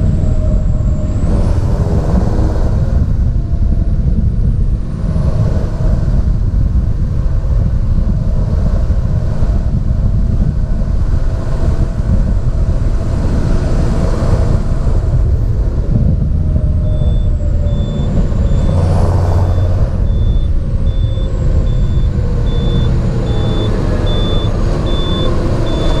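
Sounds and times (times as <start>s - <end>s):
tractor diesel engine running: 0.0s - 26.0s
electronic beeping: 16.8s - 26.0s.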